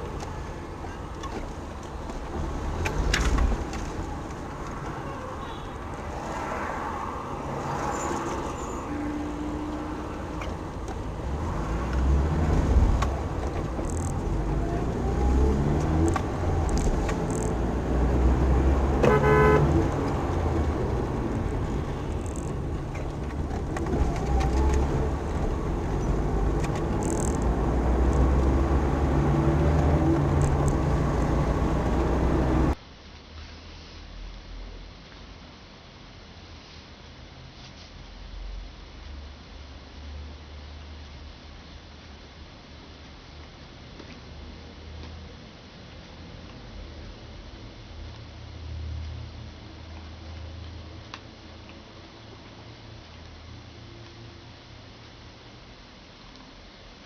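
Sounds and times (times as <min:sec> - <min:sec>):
car engine running: 0:00.0 - 0:06.2, 0:08.3 - 0:32.8
road and traffic noise: 0:00.0 - 0:57.0
car horn toot: 0:18.9 - 0:20.6.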